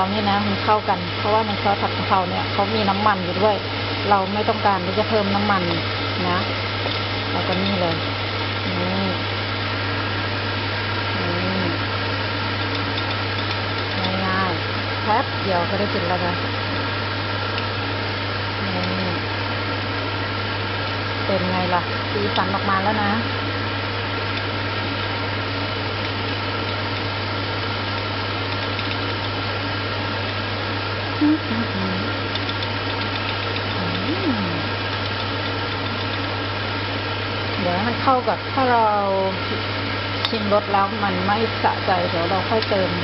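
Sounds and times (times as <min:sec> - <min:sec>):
range hood fan humming: 0:00.0 - 0:43.0
low hum: 0:31.0 - 0:43.0.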